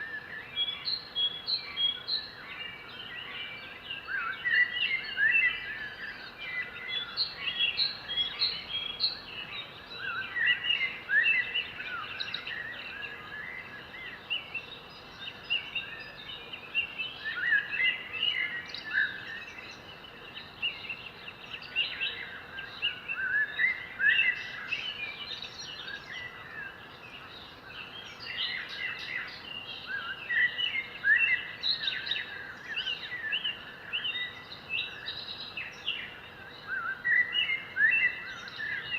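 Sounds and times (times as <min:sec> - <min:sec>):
background hiss: 0:00.0 - 0:38.9
birds chirping and singing: 0:00.0 - 0:38.9.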